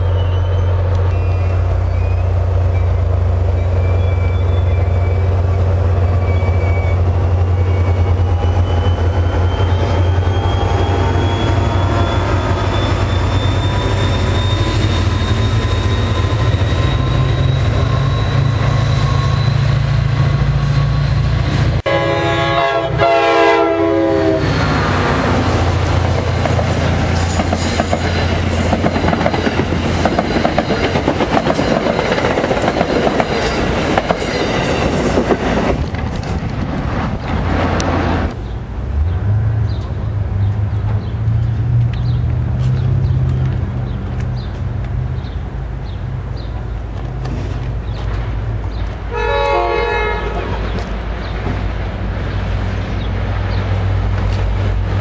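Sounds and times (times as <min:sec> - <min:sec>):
locomotive engine running: 0:00.0 - 0:49.1
train coaches rushing past: 0:00.0 - 0:55.0
multi-note train horn: 0:21.8 - 0:24.5, 0:49.1 - 0:50.7.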